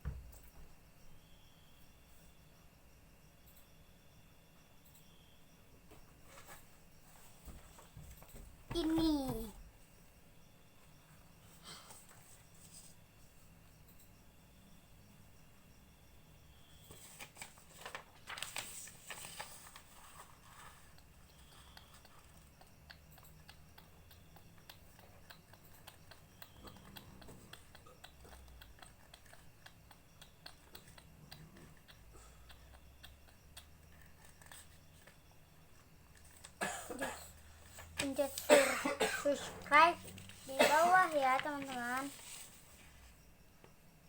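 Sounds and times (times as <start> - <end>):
paper crinkling and rustling: 16.9 - 20.9, 40.2 - 42.9.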